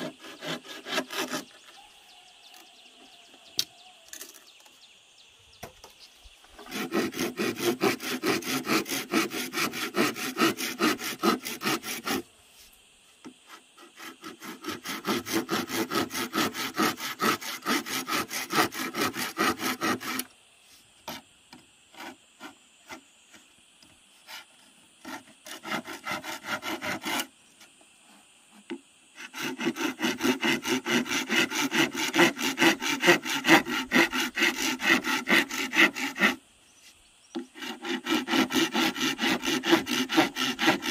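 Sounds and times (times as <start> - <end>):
hand saw cutting wood: 0.0 - 1.8, 6.6 - 12.3, 13.4 - 20.3, 21.0 - 21.2, 21.9 - 23.0, 24.2 - 27.3, 28.5 - 36.4, 37.4 - 40.9.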